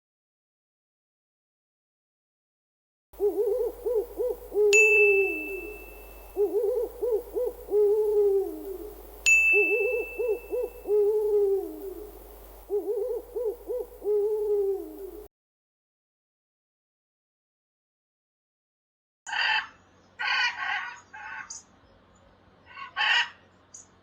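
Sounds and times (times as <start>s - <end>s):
bird call: 3.2s - 15.3s
bell-like ding: 9.3s - 9.8s.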